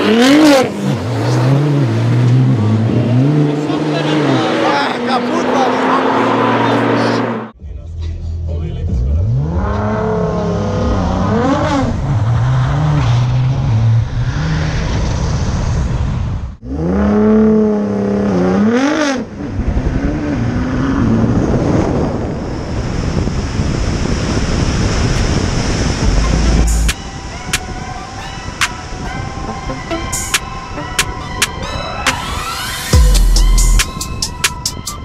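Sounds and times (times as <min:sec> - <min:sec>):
sports car accelerating hard: 0:00.0 - 0:07.6, 0:08.3 - 0:27.0
wind and road noise: 0:00.0 - 0:07.6, 0:09.2 - 0:35.0.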